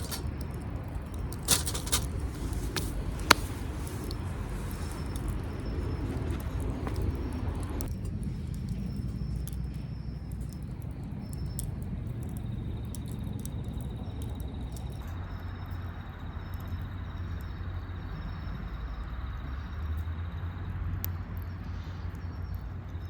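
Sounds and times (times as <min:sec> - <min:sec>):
high insect trill: 0:00.0 - 0:07.9
wood fire crackling and popping: 0:00.0 - 0:18.0
low steady rumble: 0:00.0 - 0:23.0.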